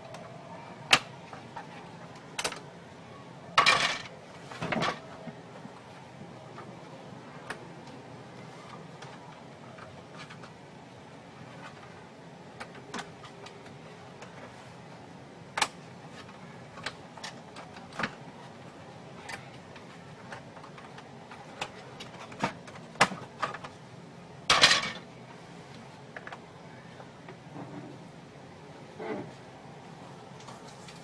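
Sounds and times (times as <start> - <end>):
parts clattering: 3.6 - 5.1, 24.5 - 25.1.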